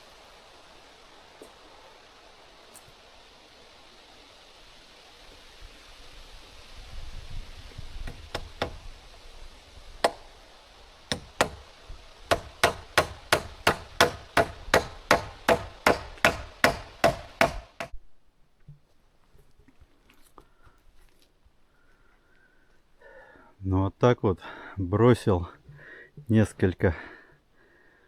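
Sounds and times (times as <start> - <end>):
hammer striking wood: 8.0 - 8.8, 10.0 - 10.4, 11.1 - 11.7, 12.3 - 18.0.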